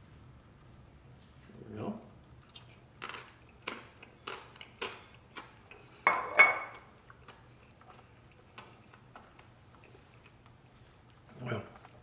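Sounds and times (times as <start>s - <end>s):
person chewing: 2.4s - 6.0s, 6.7s - 12.0s
cutlery clattering on a dish: 6.1s - 6.8s.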